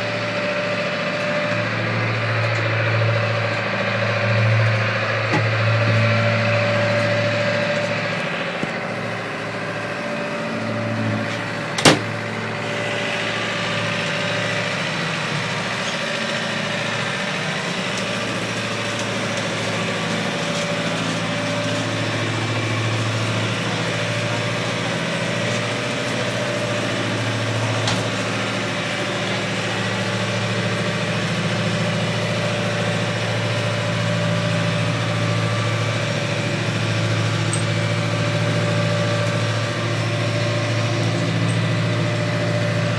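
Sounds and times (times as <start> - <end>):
boat engine humming: 0.0 - 42.9.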